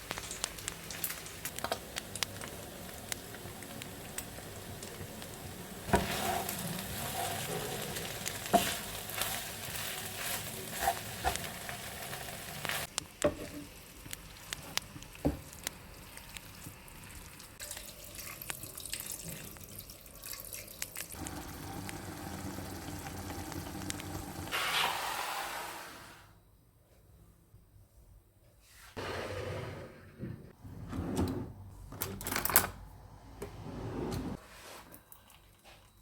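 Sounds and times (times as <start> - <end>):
food sizzling in a pan: 0.1 - 14.5, 21.1 - 26.1.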